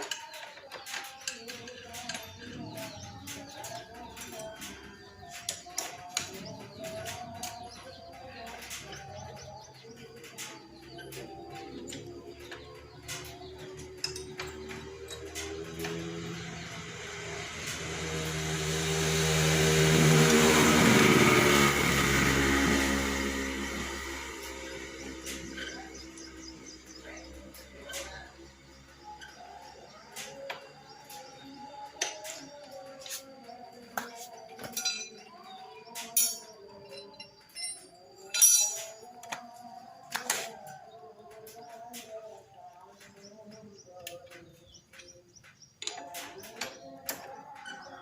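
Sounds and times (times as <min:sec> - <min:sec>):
motorcycle engine running: 0:01.7 - 0:32.8
metallic clinks of tools: 0:13.1 - 0:16.0, 0:34.6 - 0:35.4, 0:36.0 - 0:39.2
tools scraping on metal: 0:34.0 - 0:39.1.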